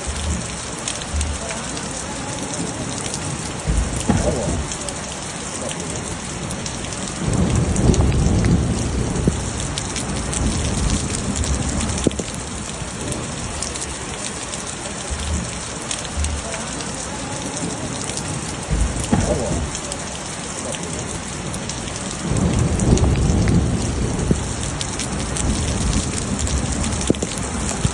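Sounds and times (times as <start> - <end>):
low rumble: 0.0 - 1.5, 3.6 - 4.8, 15.1 - 16.5, 18.6 - 19.8
heavy rain falling: 0.0 - 27.9.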